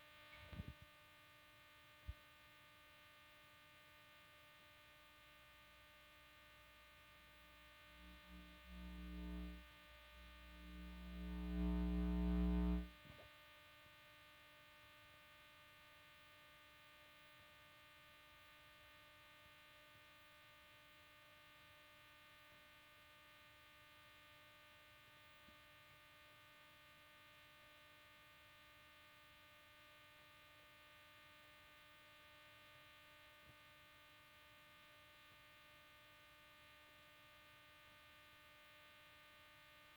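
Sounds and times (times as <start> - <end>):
electrical hum: 5.7 - 13.3
loud low hum: 7.8 - 12.9.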